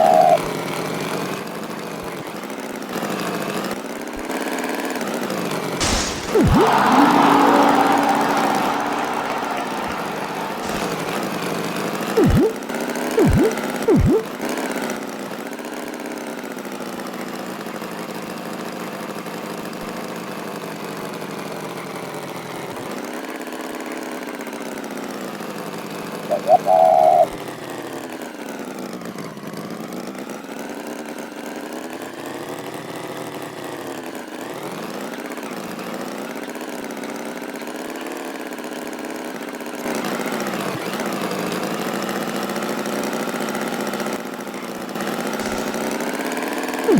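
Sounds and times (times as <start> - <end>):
cartoon tractor engine: 0.0 - 0.5, 5.8 - 12.6, 13.2 - 14.4, 26.3 - 27.4, 45.3 - 46.9
short falling sounds: 5.8 - 11.6, 12.2 - 12.6, 13.2 - 14.3
brief high beep: 12.2 - 12.6, 13.2 - 14.3.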